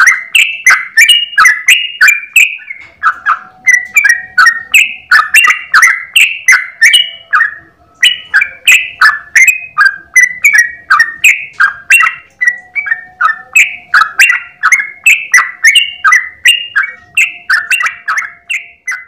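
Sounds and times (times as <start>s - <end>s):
bulbul singing bubbly notes: 0.0s - 19.0s.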